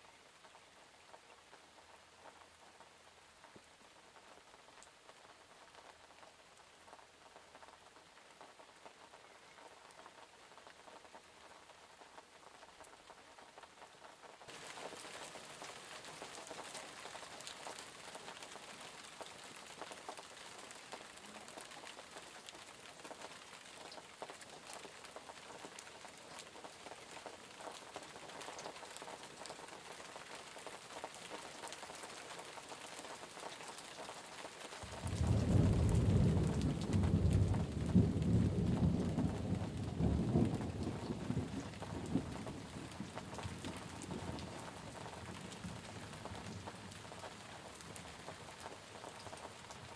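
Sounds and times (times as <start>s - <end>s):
rain pattering: 0.0s - 49.9s
deep rolling thunder: 34.9s - 42.9s.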